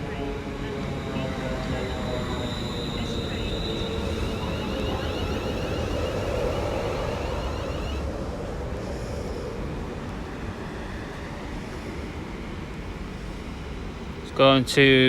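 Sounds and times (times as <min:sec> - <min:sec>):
high electrical whine: 0:00.0 - 0:08.1
train wheels rumbling on rail: 0:00.0 - 0:15.0.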